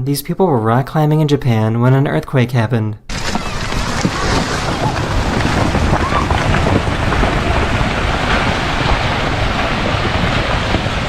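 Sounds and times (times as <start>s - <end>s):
wind buffeting microphone: 3.1s - 11.0s.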